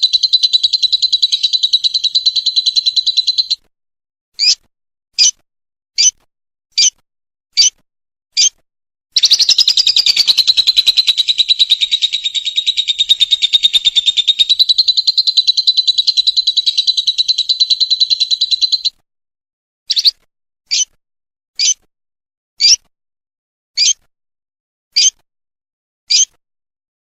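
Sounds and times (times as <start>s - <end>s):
bird rattling trill: 0.0s - 3.6s, 9.2s - 18.9s
bird short chirps: 0.0s - 3.6s, 9.2s - 18.9s.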